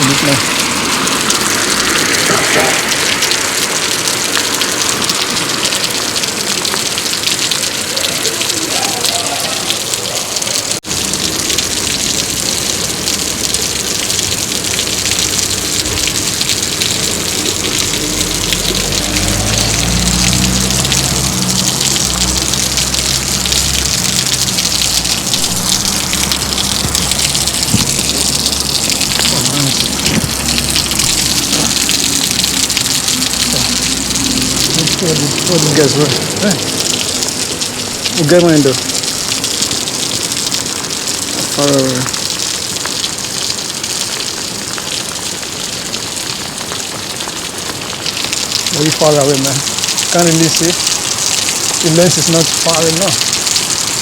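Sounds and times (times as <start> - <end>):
heavy rain on pavement: 0.0 - 54.0
running water: 0.0 - 54.0
low rumble: 14.6 - 38.2.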